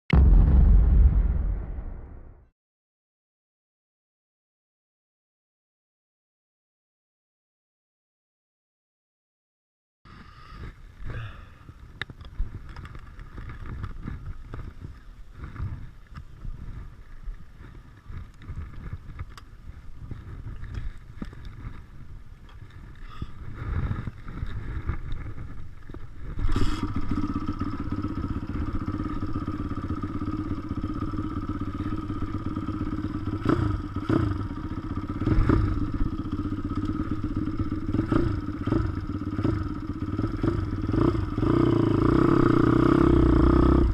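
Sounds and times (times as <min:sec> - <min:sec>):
pit bike engine running: 0:11.2 - 0:43.9
engine knocks and rattles: 0:23.9 - 0:43.9.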